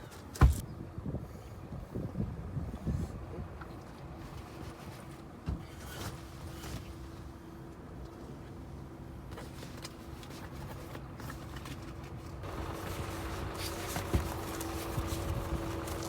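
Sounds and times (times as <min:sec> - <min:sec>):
objects knocking and rustling: 0:09.4 - 0:16.0.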